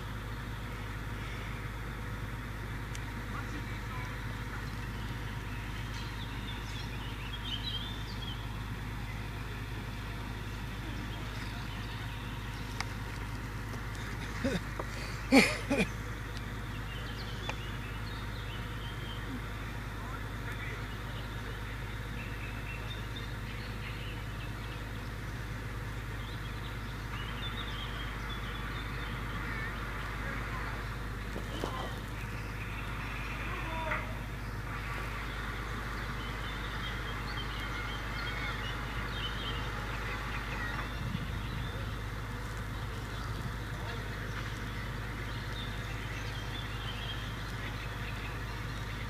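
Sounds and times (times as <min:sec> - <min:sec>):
bird chirping: 0:00.0 - 0:49.0
low engine rumble: 0:00.0 - 0:49.0.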